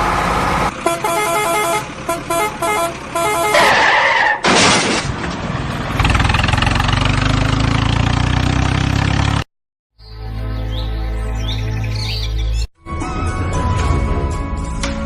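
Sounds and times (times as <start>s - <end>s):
heavy vehicle engine running: 0.0s - 3.7s, 5.4s - 9.4s
birds chirping: 10.0s - 12.7s
music: 10.0s - 15.0s.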